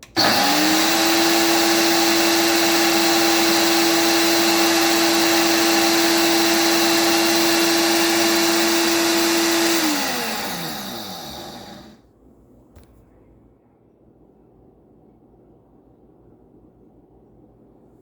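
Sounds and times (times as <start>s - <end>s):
grinder whining: 0.0s - 12.0s.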